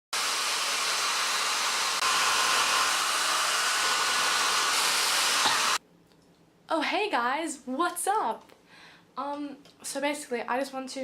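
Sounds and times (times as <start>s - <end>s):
hair dryer blowing: 0.1s - 5.8s.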